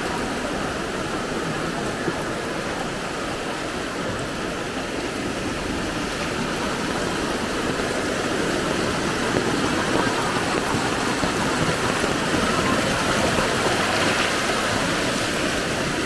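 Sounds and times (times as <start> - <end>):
rushing floodwater: 0.0 - 16.0.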